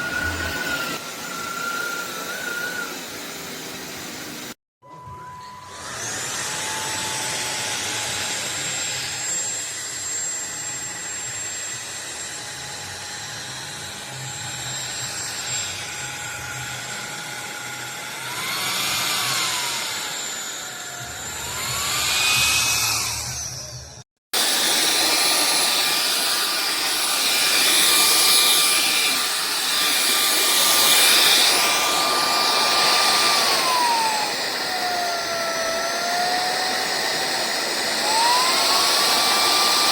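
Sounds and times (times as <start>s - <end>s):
vacuum motor whining: 0.0s - 39.9s.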